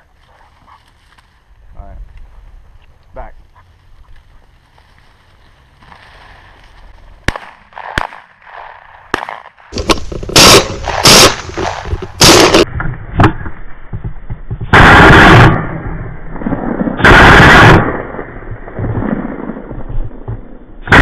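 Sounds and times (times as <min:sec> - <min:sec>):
shotgun blasts: 0:07.2 - 0:13.4, 0:14.7 - 0:19.6.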